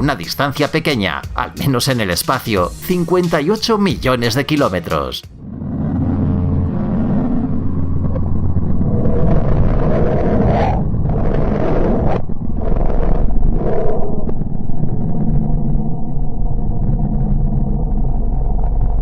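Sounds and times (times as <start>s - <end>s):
loud low radio drone: 5.2s - 13.8s.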